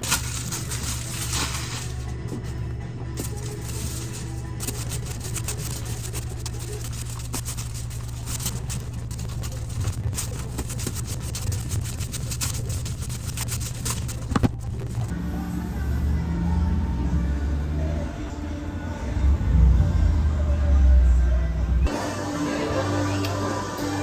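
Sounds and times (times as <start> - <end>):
background music: 0.0 - 24.0
vehicle rumbling: 14.4 - 22.0.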